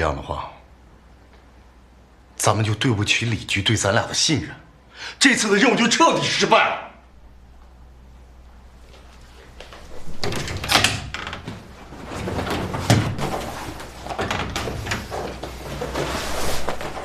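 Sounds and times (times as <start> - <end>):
rustling handling noises: 11.4 - 17.0.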